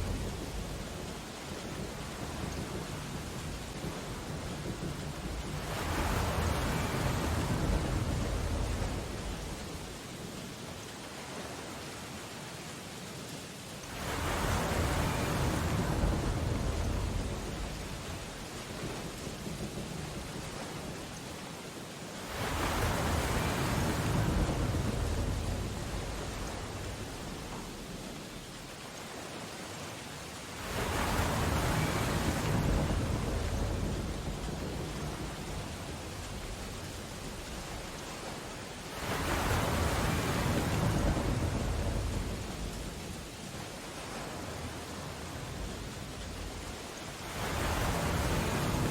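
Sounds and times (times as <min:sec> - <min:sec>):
storm surf: 0:00.0 - 0:12.3, 0:13.8 - 0:48.9
wave crashing: 0:22.2 - 0:28.4, 0:30.5 - 0:48.9.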